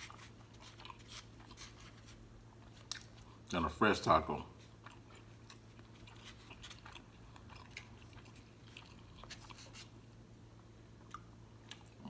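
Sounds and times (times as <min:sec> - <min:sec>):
low steady hum: 0:00.0 - 0:12.0
wet chewing smacks and clicks: 0:02.6 - 0:03.4, 0:04.6 - 0:09.9, 0:11.0 - 0:12.0.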